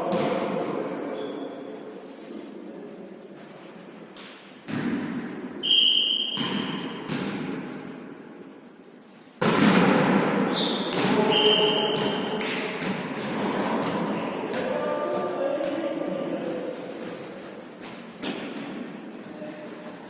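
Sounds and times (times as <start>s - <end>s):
volleyball hits echoing: 0.0s - 1.0s, 4.2s - 8.2s, 9.4s - 16.6s, 17.7s - 19.0s
court noise: 0.0s - 1.9s, 4.0s - 20.0s
referee's whistle: 5.6s - 6.6s, 10.5s - 12.3s.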